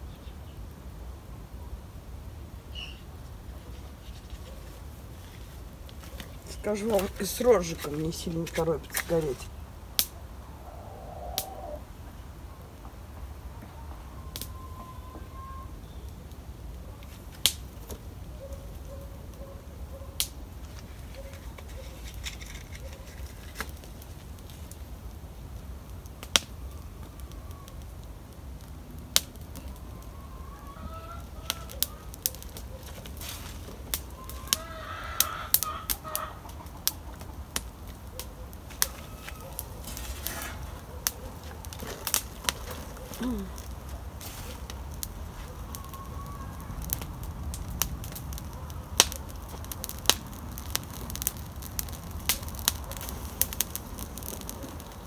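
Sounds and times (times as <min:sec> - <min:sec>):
campfire popping and crackling: 0:02.0 - 0:14.6, 0:15.8 - 0:55.0
chickens clucking: 0:10.5 - 0:11.8, 0:34.2 - 0:39.8.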